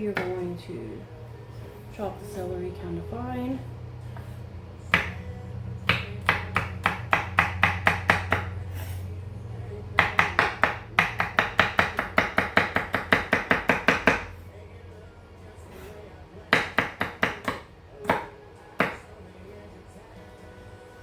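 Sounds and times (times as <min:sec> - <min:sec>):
knife chopping on cutting board: 0:04.9 - 0:05.2, 0:05.9 - 0:08.5, 0:10.0 - 0:14.3, 0:16.6 - 0:19.0.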